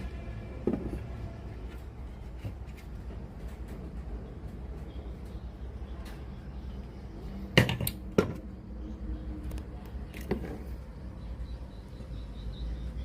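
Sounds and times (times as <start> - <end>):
hard objects knocking: 0.6 - 1.1, 7.6 - 8.5.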